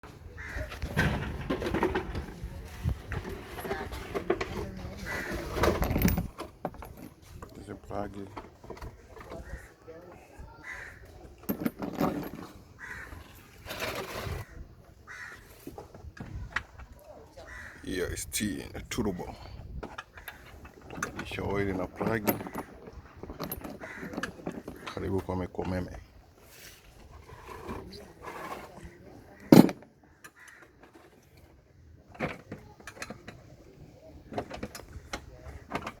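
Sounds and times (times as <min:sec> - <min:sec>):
crow cawing: 0:00.4 - 0:00.7, 0:10.6 - 0:11.1, 0:12.8 - 0:13.3, 0:15.1 - 0:15.5, 0:17.4 - 0:17.8, 0:30.3 - 0:30.8.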